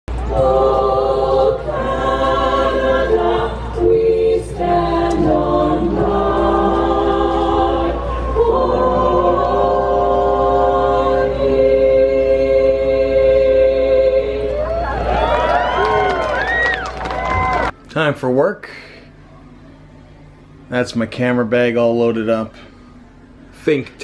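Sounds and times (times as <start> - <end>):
choir singing held chords: 0.1 - 16.6.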